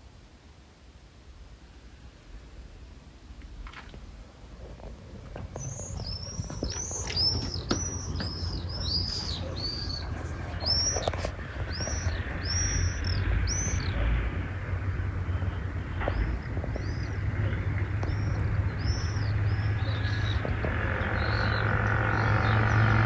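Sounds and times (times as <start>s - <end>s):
low steady rumble: 0.0s - 23.0s
flock of birds calling: 4.6s - 23.0s.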